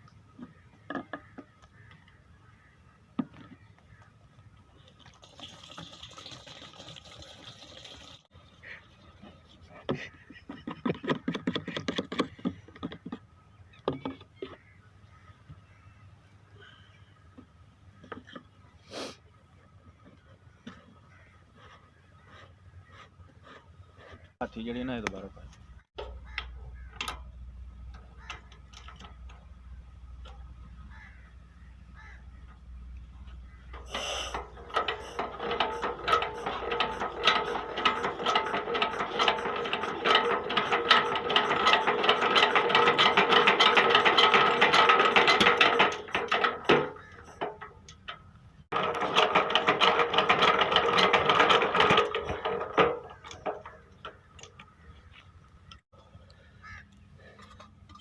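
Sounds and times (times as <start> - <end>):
diesel engine cranking whirr: 33.7 - 54.3.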